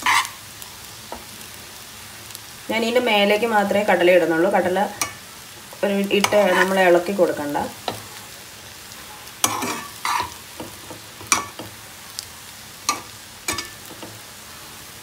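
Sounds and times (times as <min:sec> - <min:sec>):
metal spoon scraping a pan: 0:00.0 - 0:00.4, 0:04.9 - 0:07.2, 0:09.0 - 0:11.8, 0:12.8 - 0:14.2.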